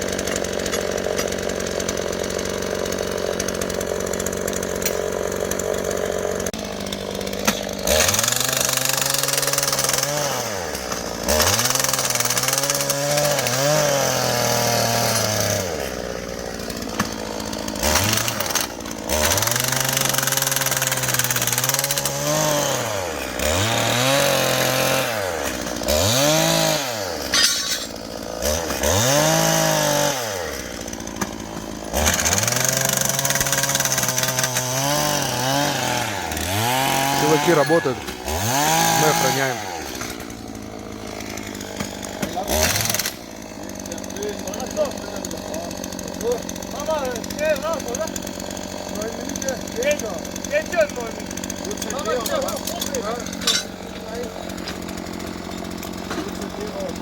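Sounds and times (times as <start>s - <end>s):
small petrol engine revving: 0.0s - 57.0s.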